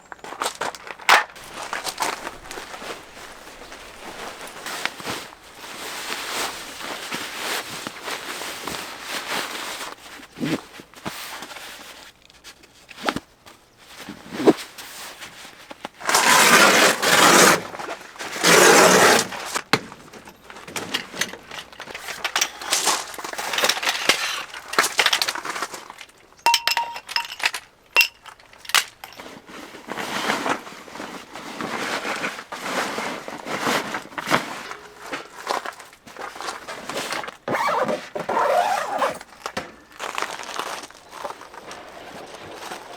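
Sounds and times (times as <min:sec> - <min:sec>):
camping gear rustling: 0:00.4 - 0:42.9
ringing clink: 0:26.5 - 0:27.4.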